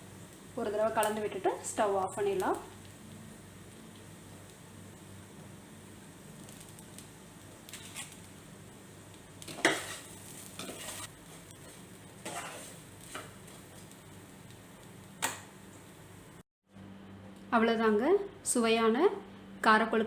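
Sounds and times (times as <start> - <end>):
utensil scraping in a pan: 7.7 - 8.3, 9.5 - 13.8.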